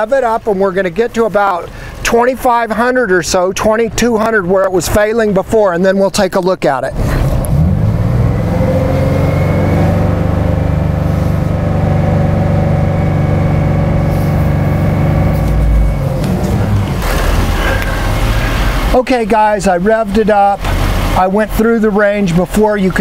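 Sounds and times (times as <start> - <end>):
car engine revving: 6.9 - 22.6.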